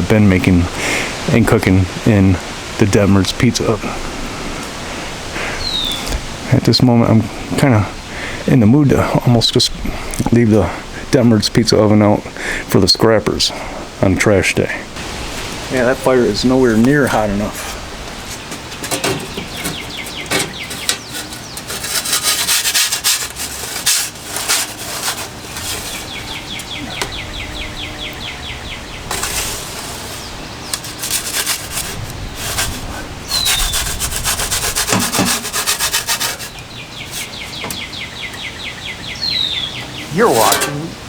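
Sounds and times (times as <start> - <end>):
wind gusts hissing: 0.0 - 41.0
birds trilling: 3.5 - 9.2, 14.8 - 41.0.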